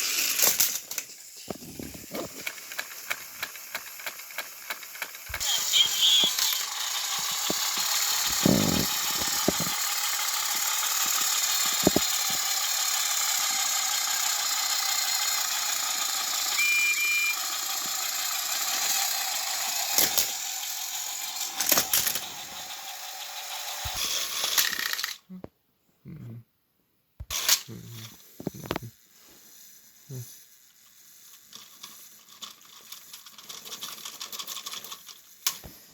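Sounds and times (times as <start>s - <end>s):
toy electric motors whirring: 0.0s - 25.2s, 27.3s - 35.9s
sharp clicks and knocks: 11.0s - 12.4s.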